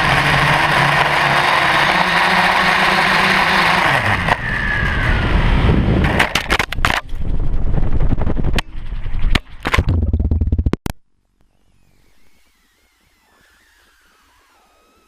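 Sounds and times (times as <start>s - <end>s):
quadcopter motors running: 0.0s - 6.2s, 11.8s - 15.0s.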